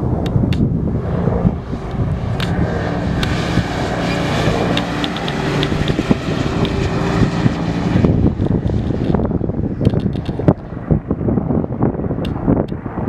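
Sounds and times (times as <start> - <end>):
tyres and wind rushing: 0.0 - 13.0
car engine revving: 1.0 - 9.3.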